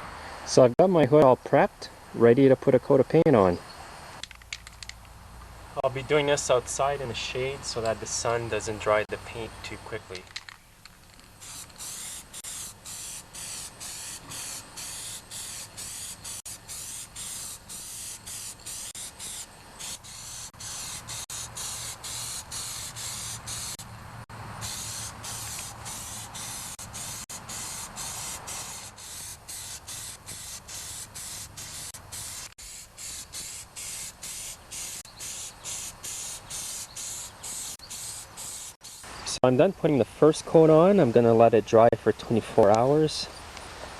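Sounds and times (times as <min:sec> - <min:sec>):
spray paint hissing in short passes: 0:11.2 - 0:23.9, 0:24.5 - 0:39.4.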